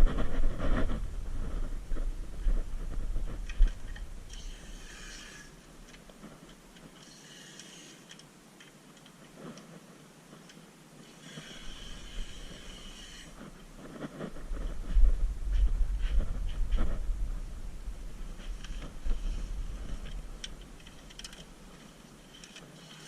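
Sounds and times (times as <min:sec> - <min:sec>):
small clicks: 0:20.0 - 0:21.5.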